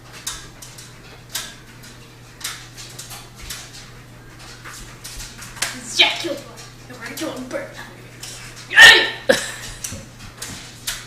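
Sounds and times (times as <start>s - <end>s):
steady low hum: 0.0s - 11.0s
dog scratching noises: 0.2s - 11.0s.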